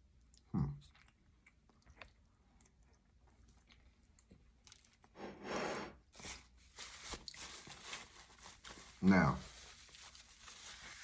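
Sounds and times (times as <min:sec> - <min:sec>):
faint chewing: 0:00.0 - 0:05.2.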